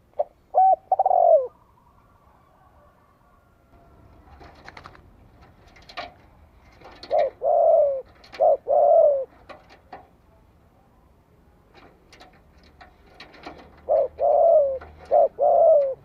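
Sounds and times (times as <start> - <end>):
dove cooing: 0.1 - 1.7, 6.7 - 9.8, 13.1 - 16.0.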